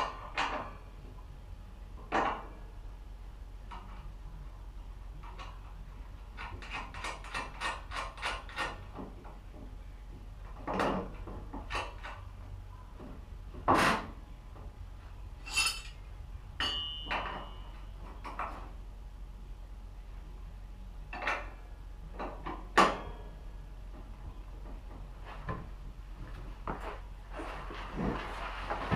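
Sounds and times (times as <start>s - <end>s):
metal parts clunking: 15.4s - 16.0s
metal tools clicking: 15.4s - 16.0s.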